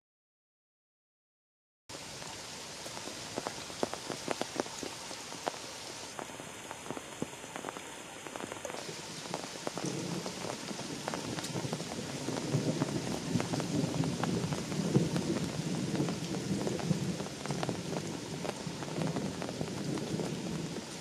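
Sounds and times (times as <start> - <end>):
heavy rain on leaves: 1.9 - 21.0.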